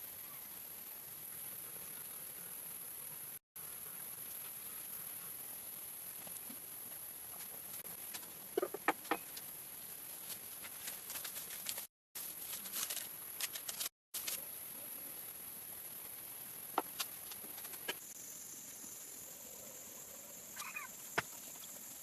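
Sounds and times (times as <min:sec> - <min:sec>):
steady high hiss: 0:00.0 - 0:22.0
short bird calls: 0:20.6 - 0:21.0.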